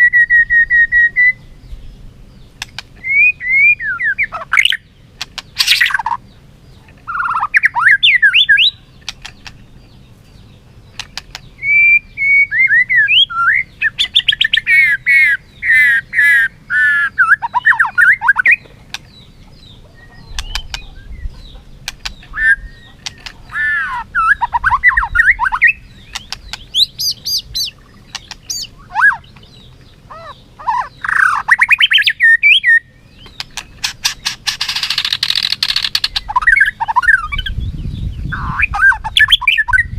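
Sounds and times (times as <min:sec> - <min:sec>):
bird singing whistled phrases: 0:00.0 - 0:01.6, 0:03.0 - 0:04.9, 0:07.1 - 0:09.0, 0:11.6 - 0:18.6, 0:22.3 - 0:29.4, 0:30.1 - 0:33.4, 0:34.7 - 0:39.9.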